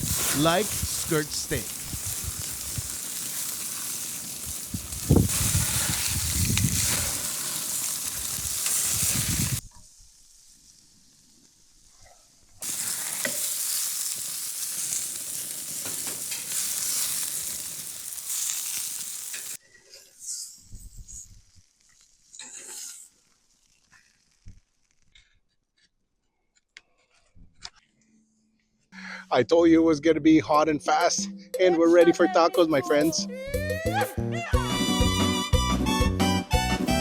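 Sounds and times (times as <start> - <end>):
steak sizzling over fire: 0.0 - 11.9, 12.6 - 19.6, 20.8 - 25.0.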